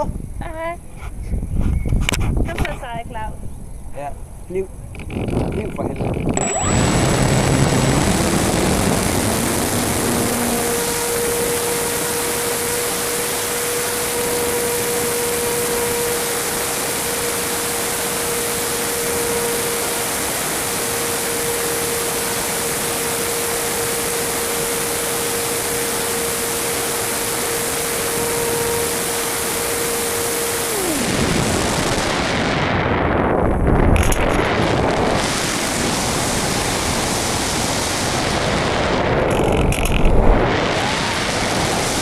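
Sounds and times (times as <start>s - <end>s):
model aircraft motor and propeller: 4.9s - 32.2s, 39.2s - 42.0s
rush of air: 28.0s - 42.0s.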